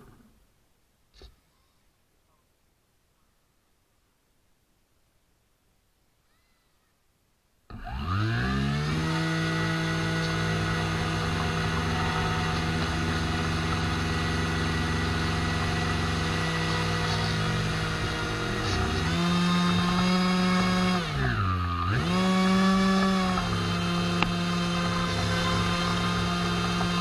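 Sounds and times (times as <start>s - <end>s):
model boat motor buzzing: 7.7s - 27.0s.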